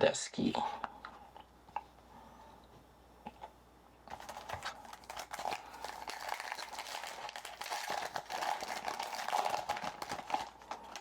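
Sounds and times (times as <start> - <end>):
foil wrapper tearing and crinkling: 4.1 - 11.0.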